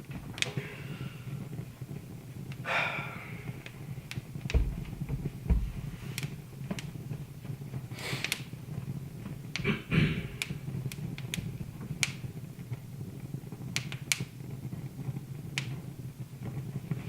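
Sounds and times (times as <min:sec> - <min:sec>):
wood fire crackling: 0:00.0 - 0:17.0
low hum: 0:04.5 - 0:06.5
dull low thumps: 0:04.5 - 0:06.6.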